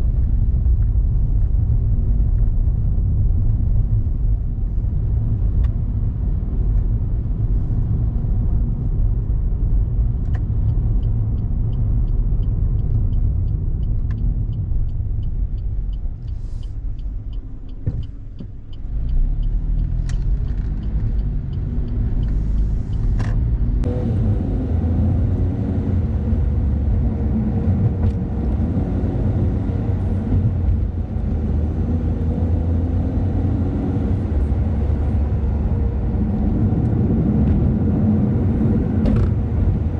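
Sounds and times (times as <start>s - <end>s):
car engine and tyres rumbling: 0.0s - 39.9s
faint regular ticking: 10.6s - 23.1s.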